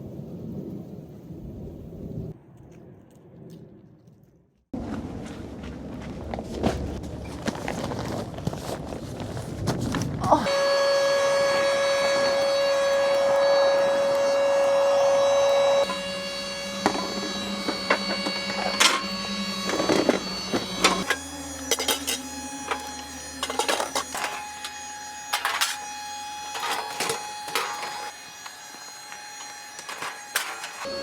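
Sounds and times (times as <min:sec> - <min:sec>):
steady held tones: 0:10.4 - 0:31.0.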